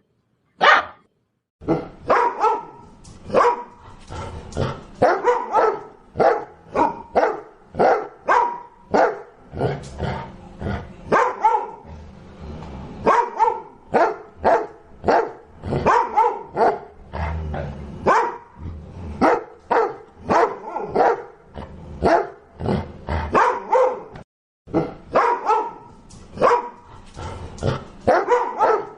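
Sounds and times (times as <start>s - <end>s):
dog barking: 0.6s - 1.0s, 1.7s - 3.8s, 5.0s - 9.3s, 11.1s - 11.9s, 13.0s - 17.0s, 18.0s - 18.5s, 19.2s - 21.4s, 22.0s - 22.4s, 23.3s - 26.8s, 28.1s - 28.9s.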